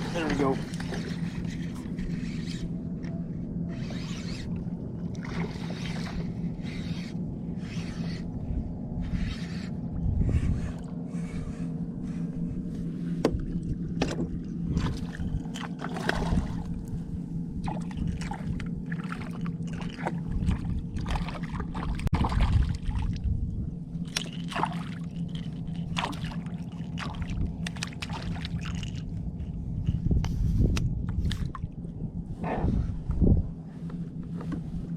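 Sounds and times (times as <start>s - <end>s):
steady low hum: 0.0s - 34.9s
shallow water splashing: 4.5s - 6.8s, 13.3s - 23.4s, 24.0s - 29.2s.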